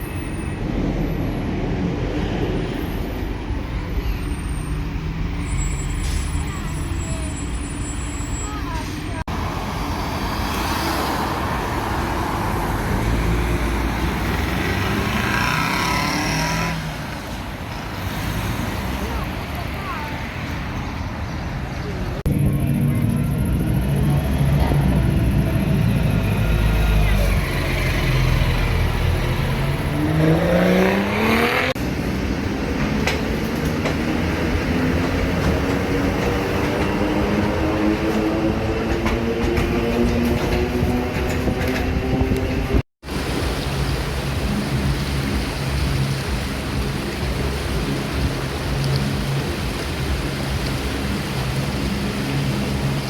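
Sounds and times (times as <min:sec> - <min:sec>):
road traffic noise: 0:00.0 - 0:53.0
vehicle engine accelerating: 0:10.0 - 0:17.2, 0:22.2 - 0:49.2
steady engine drone: 0:22.2 - 0:29.9.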